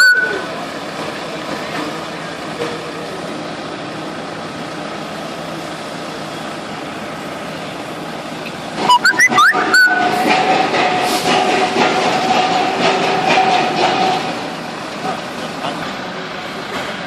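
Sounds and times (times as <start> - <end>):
pile driver machinery running: 0.0 - 17.0
high-pitched squeals: 8.9 - 10.3.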